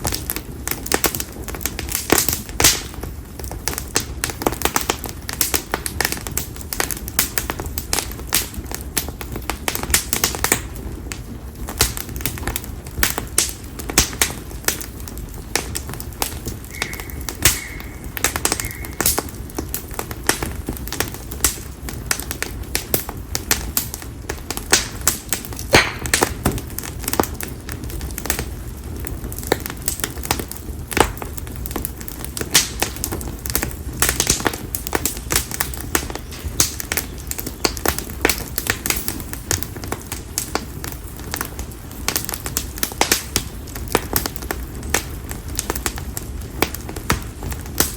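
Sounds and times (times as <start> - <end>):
campfire popping and crackling: 0.0 - 47.9
low rumble of flame: 0.0 - 47.9
faint high bird note: 16.7 - 19.2.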